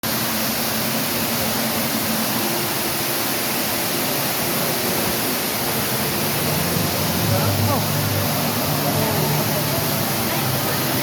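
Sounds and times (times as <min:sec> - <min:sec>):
waterfall rushing into pool: 0:00.0 - 0:11.0.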